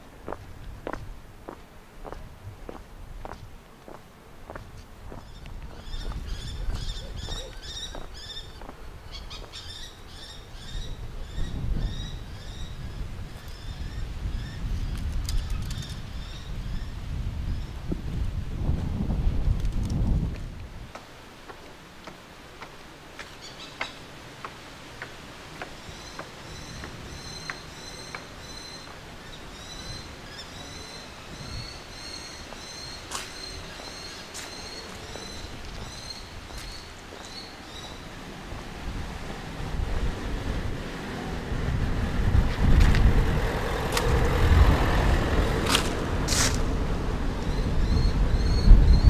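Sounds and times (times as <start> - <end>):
songbirds chirping: 0.0 - 17.9, 20.9 - 42.1.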